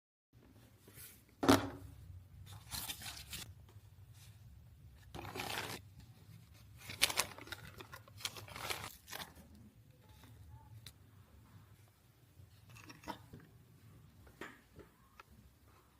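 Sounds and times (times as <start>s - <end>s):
packaging crinkling: 2.5s - 3.5s, 5.1s - 5.8s, 6.7s - 9.6s
packaging tearing: 5.2s - 5.8s, 6.8s - 9.4s.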